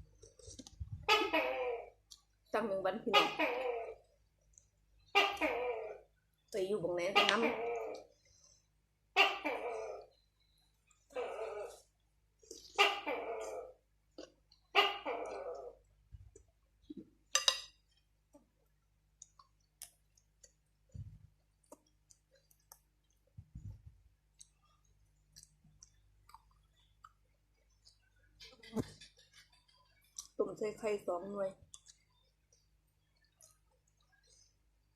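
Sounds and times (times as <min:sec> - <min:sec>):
gecko calling: 0:07.1 - 0:08.1.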